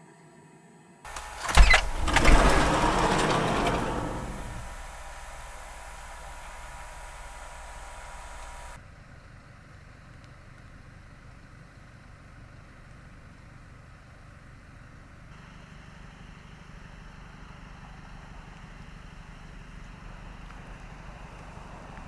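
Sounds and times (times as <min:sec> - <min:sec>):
car engine humming: 0:01.1 - 0:08.8.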